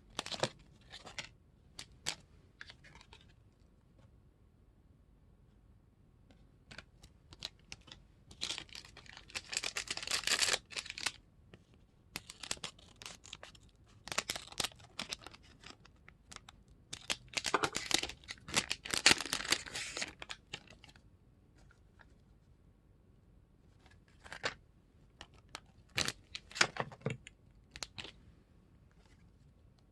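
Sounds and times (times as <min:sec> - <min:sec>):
plastic wrapper crinkling and tearing: 0:07.3 - 0:11.2, 0:12.2 - 0:21.0, 0:25.2 - 0:26.8.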